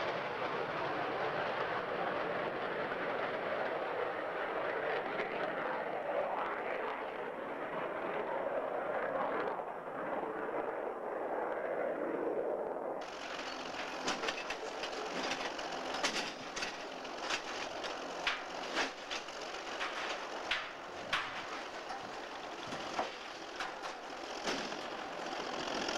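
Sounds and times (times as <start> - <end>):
railcars rolling on track: 0.0 - 5.9, 13.0 - 25.9
steady rushing noise: 0.0 - 25.9
sharp clanks and clicks: 13.0 - 25.9.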